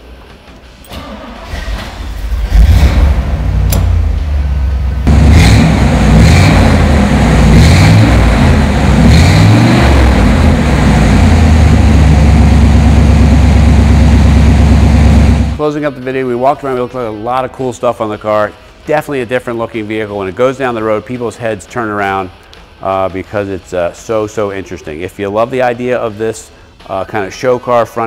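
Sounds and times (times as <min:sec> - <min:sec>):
car engine revving and idling: 0:01.9 - 0:15.6.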